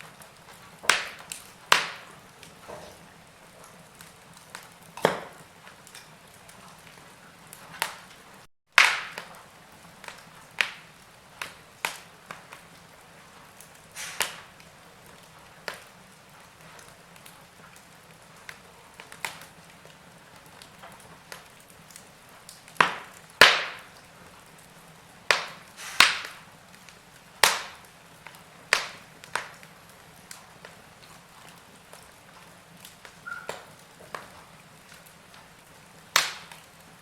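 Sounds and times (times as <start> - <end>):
wood fire crackling: 0.0 - 37.0
soft steady hiss: 9.1 - 37.0.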